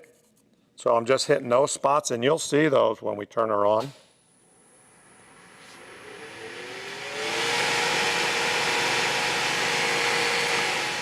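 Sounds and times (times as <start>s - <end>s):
lathe motor whine and hum: 4.6s - 11.0s
spinning wood whir: 5.3s - 11.0s.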